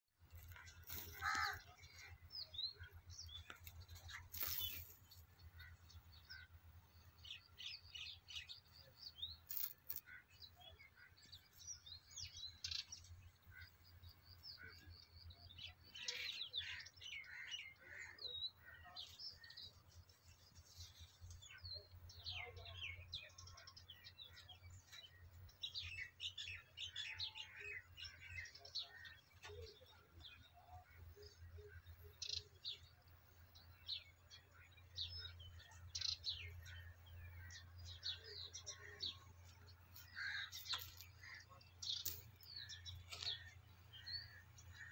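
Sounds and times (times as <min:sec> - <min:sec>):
small birds chirping: 0:00.1 - 0:44.9.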